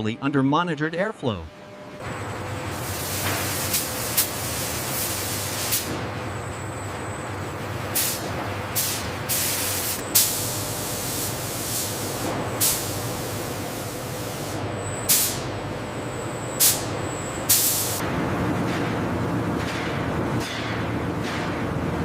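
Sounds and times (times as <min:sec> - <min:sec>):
industrial machinery rumble: 0:00.0 - 0:22.0
hissing air blasts: 0:02.7 - 0:06.0, 0:07.9 - 0:15.5, 0:16.6 - 0:16.9, 0:17.5 - 0:18.0.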